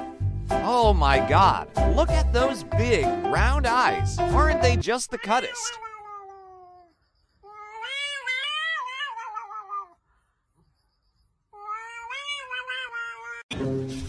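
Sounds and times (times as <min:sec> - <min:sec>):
cat meowing: 0:05.1 - 0:10.0, 0:11.5 - 0:13.5.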